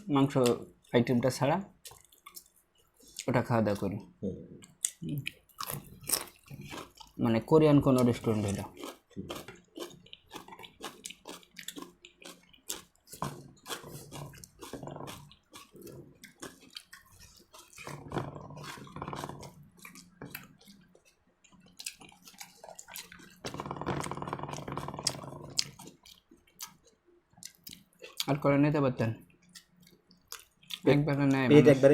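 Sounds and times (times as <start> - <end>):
chewing: 1.8 - 28.4, 29.2 - 31.0.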